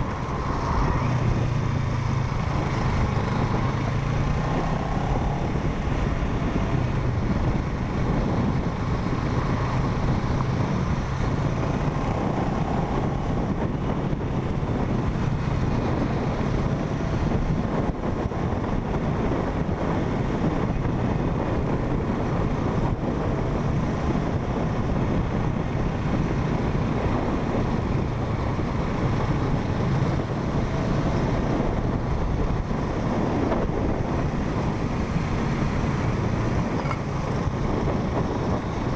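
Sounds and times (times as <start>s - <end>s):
motorcycle engine: 0.0s - 38.9s
road rumble: 0.0s - 38.9s
wind rushing over microphone: 0.0s - 38.9s.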